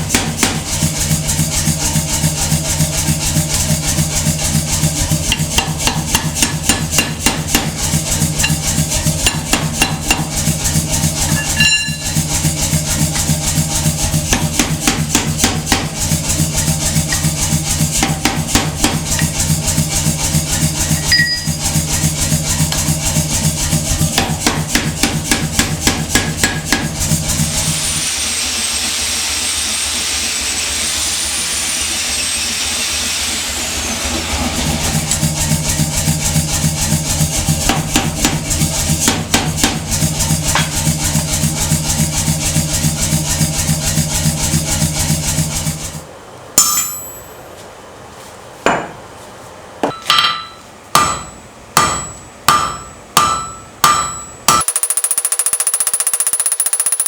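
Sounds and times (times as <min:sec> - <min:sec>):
power hammer striking steel: 0:00.0 - 0:00.8, 0:05.3 - 0:16.0, 0:16.7 - 0:19.5, 0:20.8 - 0:21.6, 0:24.2 - 0:27.0, 0:46.6 - 0:47.5, 0:49.8 - 0:57.0
hand hammer ringing on steel: 0:11.4 - 0:12.2, 0:46.6 - 0:47.5, 0:49.9 - 0:57.0.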